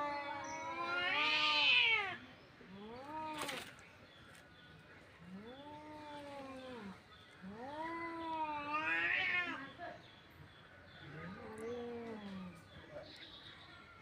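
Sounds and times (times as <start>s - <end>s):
cats yowling: 0.0s - 2.2s, 5.6s - 9.7s.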